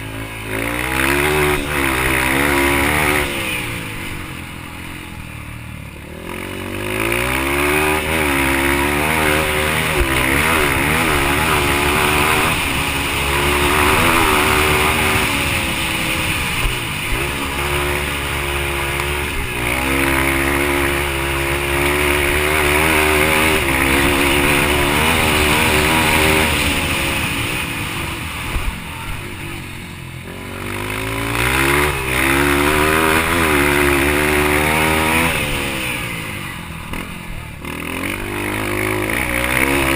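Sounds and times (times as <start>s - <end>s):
dirt bike engine revving hard: 0.0s - 39.9s.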